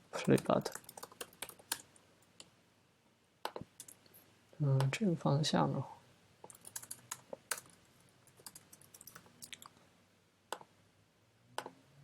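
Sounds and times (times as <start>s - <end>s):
typing on computer keyboard: 0.2s - 1.9s, 3.5s - 4.0s, 6.5s - 9.7s.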